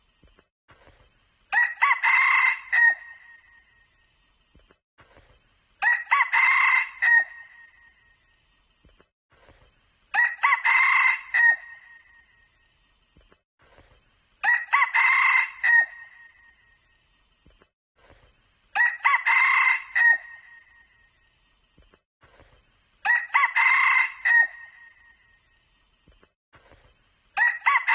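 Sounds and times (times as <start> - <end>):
rooster crowing: 1.5 - 3.3, 5.8 - 7.6, 10.2 - 11.9, 14.4 - 16.2, 18.8 - 20.7, 23.0 - 25.0, 27.4 - 27.9.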